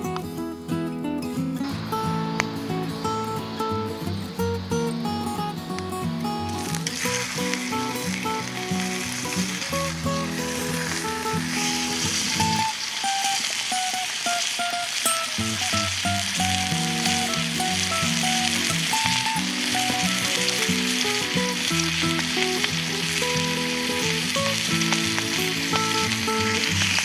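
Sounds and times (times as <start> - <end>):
bacon and eggs sizzling in a pan: 6.8 - 27.0.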